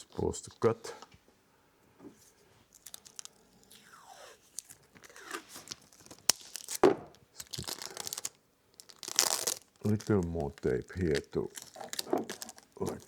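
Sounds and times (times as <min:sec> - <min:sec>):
tape crinkling: 0:02.6 - 0:13.0
adhesive tape pulled and torn: 0:02.7 - 0:13.0.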